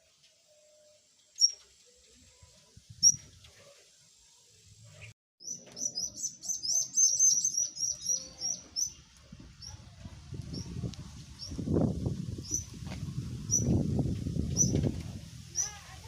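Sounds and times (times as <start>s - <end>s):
birds chirping: 0.5s - 3.6s, 4.8s - 13.8s, 14.4s - 14.9s.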